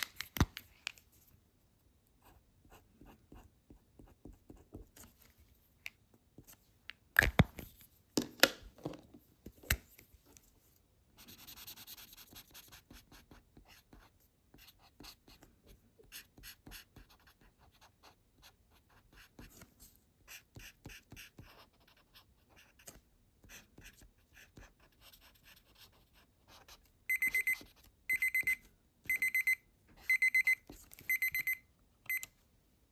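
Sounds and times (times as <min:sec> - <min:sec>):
marker scratching on paper: 0:11.2 - 0:27.9
digital timer alarm beeping: 0:27.1 - 0:32.3.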